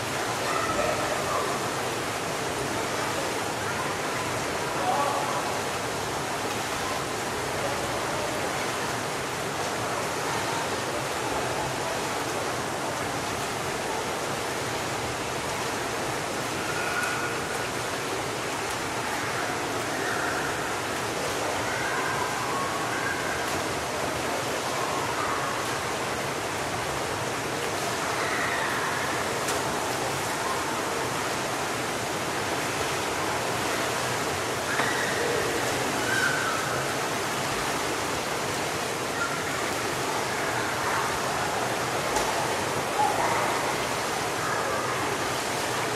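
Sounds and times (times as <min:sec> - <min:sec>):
water splashing: 0:00.0 - 0:45.9
children's voices: 0:00.4 - 0:01.6, 0:39.1 - 0:41.6, 0:42.3 - 0:45.2
crowd noise: 0:27.8 - 0:45.9.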